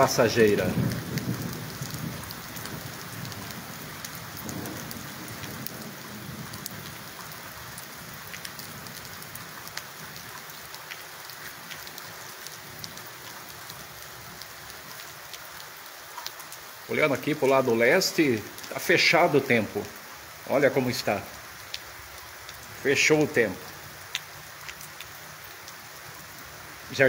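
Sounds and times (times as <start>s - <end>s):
thunder rumble: 0.0s - 7.0s
rain falling: 0.0s - 27.0s.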